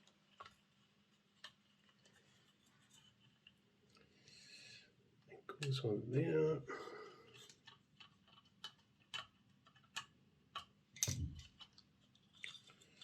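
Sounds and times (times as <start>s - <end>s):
plastic parts clicking and tapping: 7.3s - 13.0s.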